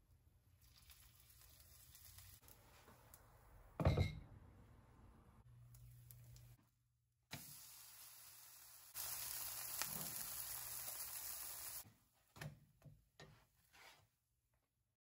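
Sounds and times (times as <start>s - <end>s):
omelette sizzling in a pan: 0.6s - 2.8s, 7.3s - 11.9s.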